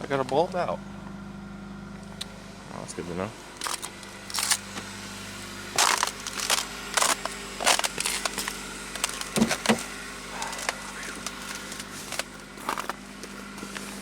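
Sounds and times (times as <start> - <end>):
engine idling: 0.0 - 14.0
footsteps crunching on frozen snow: 3.4 - 14.0.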